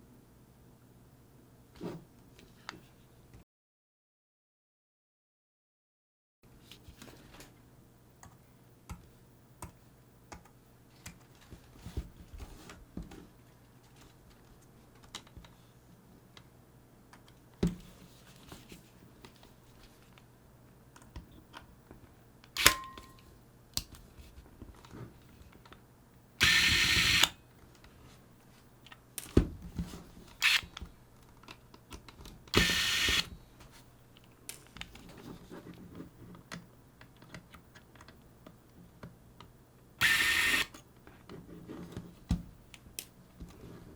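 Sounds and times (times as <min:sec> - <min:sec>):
sharp ringing click: 0:22.6 - 0:23.2.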